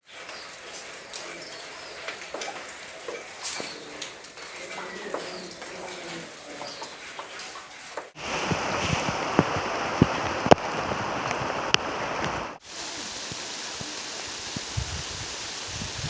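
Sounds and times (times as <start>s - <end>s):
raindrops striking a surface: 0.0s - 16.0s
heavy rain falling: 8.2s - 16.0s.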